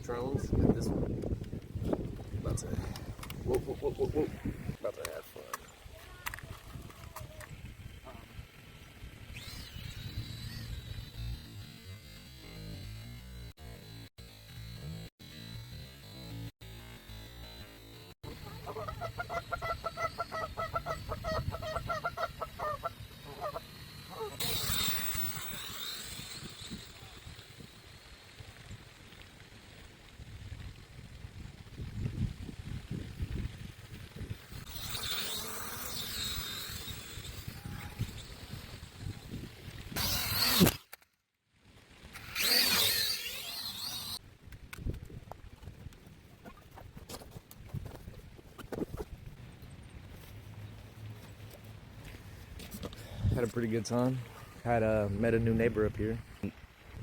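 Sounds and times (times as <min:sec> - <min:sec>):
drone propellers buzzing: 0:06.2 - 0:40.9, 0:42.1 - 0:44.2
waterfowl honking: 0:18.3 - 0:24.4.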